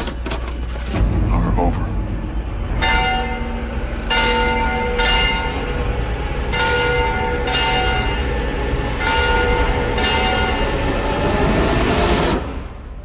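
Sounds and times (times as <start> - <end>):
steady low rumble: 0.6 - 10.1
large bell ringing: 2.0 - 11.0.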